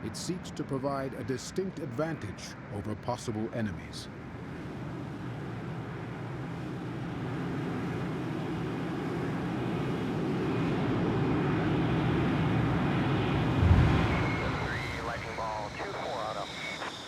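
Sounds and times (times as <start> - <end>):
jet engine roaring: 10.6 - 17.0.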